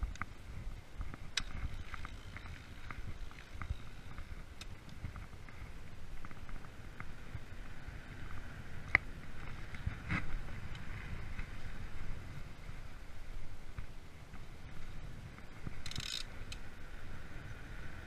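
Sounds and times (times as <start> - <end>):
bike rattling and clicking: 0.0 - 11.6, 15.2 - 17.6
bike tyres rumbling on trail: 0.0 - 18.0.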